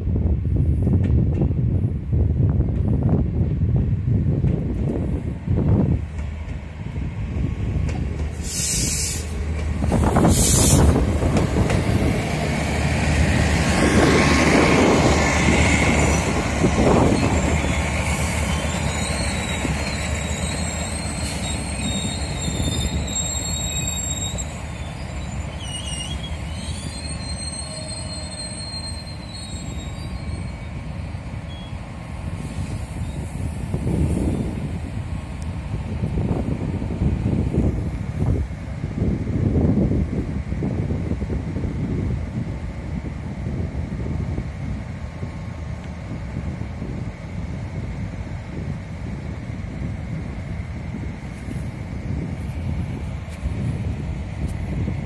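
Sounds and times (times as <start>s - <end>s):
wheels rumbling on rails: 0.0s - 55.0s
short hisses: 8.4s - 9.4s, 10.2s - 11.0s
brake squealing: 16.0s - 30.8s.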